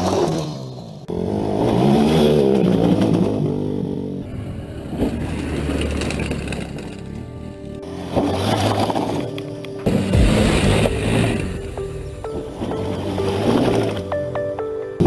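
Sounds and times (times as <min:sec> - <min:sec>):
motorcycle engine revving: 0:00.0 - 0:07.3.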